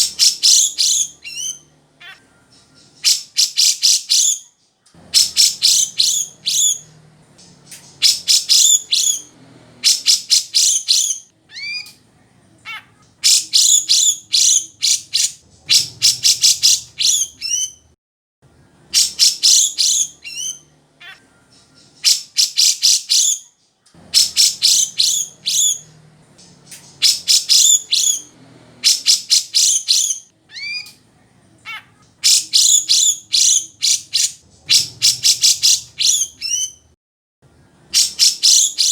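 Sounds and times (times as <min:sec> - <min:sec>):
bird singing rattling notes: 0:00.0 - 0:04.4, 0:05.0 - 0:12.0, 0:12.7 - 0:17.9, 0:18.9 - 0:23.4, 0:24.0 - 0:31.0, 0:31.7 - 0:36.8, 0:38.0 - 0:38.9.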